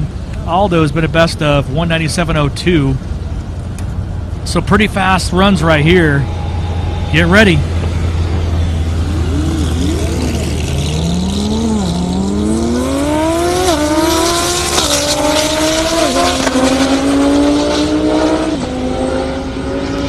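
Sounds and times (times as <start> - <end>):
steady low drone: 3.0 - 12.6
race car engine revving and shifting: 6.2 - 20.0.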